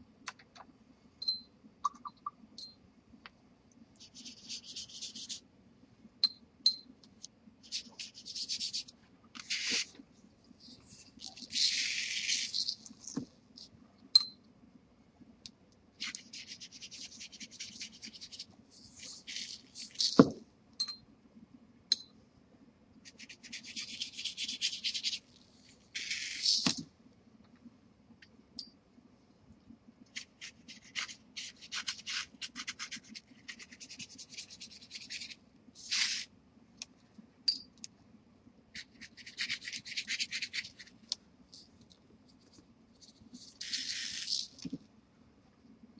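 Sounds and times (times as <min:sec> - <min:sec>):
pastel scribbling on paper: 0:04.0 - 0:05.4, 0:07.6 - 0:08.9, 0:16.0 - 0:20.2, 0:23.1 - 0:25.2, 0:30.2 - 0:36.3, 0:38.8 - 0:40.9.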